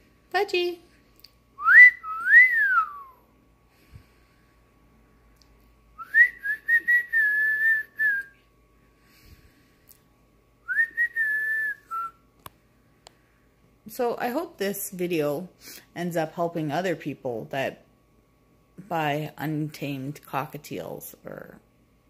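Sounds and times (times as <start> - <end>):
person whistling: 1.6 - 3.2, 6.0 - 8.4, 10.7 - 12.2.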